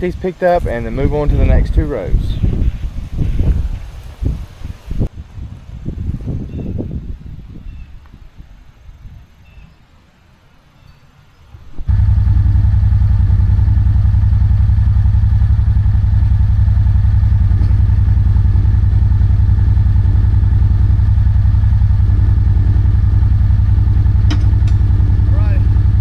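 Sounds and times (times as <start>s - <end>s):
utility vehicle engine running: 11.9s - 26.0s.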